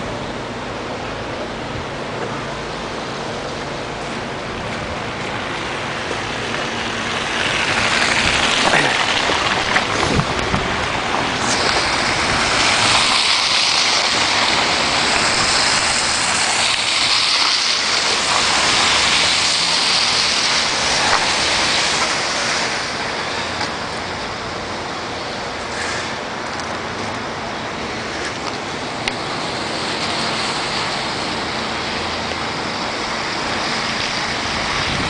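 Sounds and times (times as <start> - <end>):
tyres hissing on wet street: 0.0 - 35.0.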